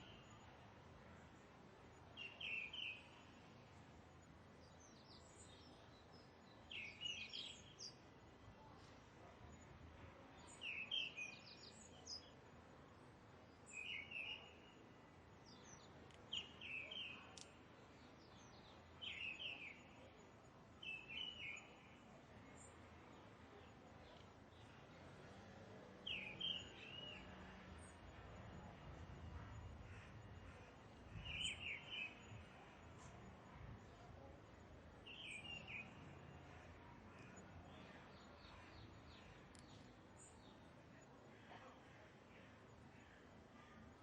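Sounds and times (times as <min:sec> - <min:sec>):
faint outdoor hiss: 0:00.0 - 0:44.0
bird chirping: 0:15.4 - 0:20.1, 0:20.8 - 0:21.9, 0:26.0 - 0:28.2, 0:29.4 - 0:33.1, 0:35.0 - 0:40.6.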